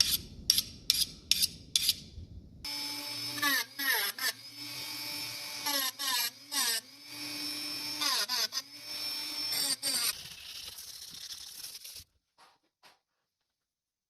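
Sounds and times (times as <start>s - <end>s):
power tool whining: 2.7s - 10.2s.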